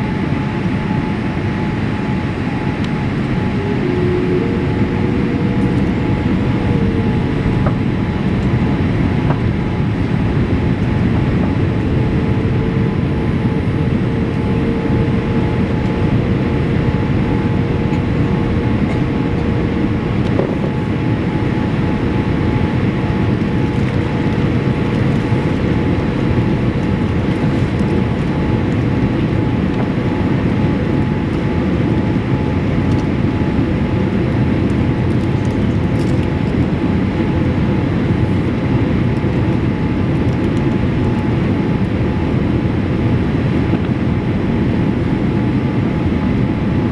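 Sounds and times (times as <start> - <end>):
airplane cabin roar: 0.0 - 46.9
faint steady whine: 0.0 - 46.9.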